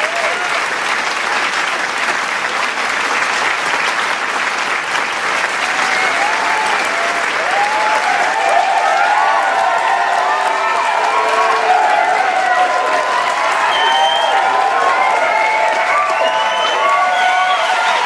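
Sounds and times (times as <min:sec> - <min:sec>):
crowd cheering and whooping: 0:00.0 - 0:00.6, 0:05.3 - 0:18.0
crowd applauding: 0:00.0 - 0:18.0.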